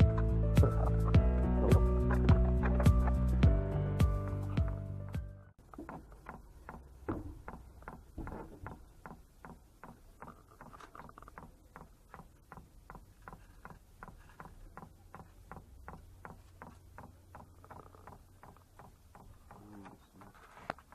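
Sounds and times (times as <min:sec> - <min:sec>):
fuel pump ticking: 0:05.6 - 0:20.9.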